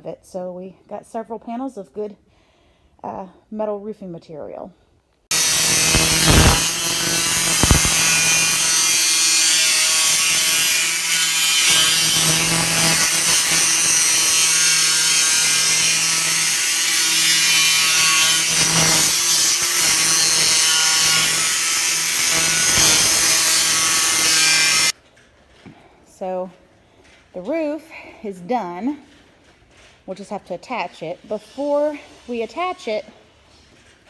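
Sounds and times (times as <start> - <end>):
loud even hiss: 5.3 - 10.0
power tool running: 5.3 - 24.9.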